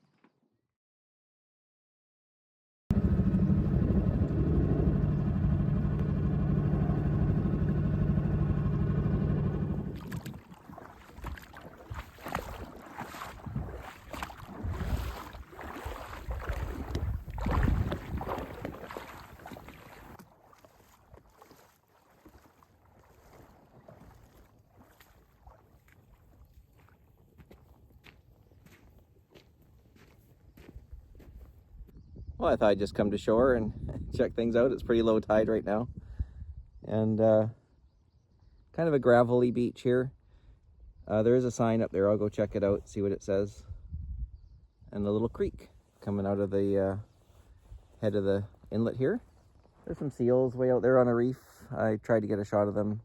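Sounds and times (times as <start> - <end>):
small boat motor running: 2.9 - 10.6
water splashes: 9.7 - 27.0.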